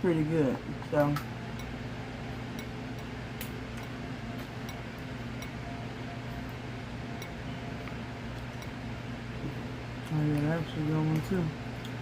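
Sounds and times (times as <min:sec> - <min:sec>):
low mechanical hum: 0:00.0 - 0:12.0
clicks and clinks of eating: 0:01.0 - 0:01.8, 0:02.5 - 0:05.6, 0:07.2 - 0:08.8, 0:10.0 - 0:12.0.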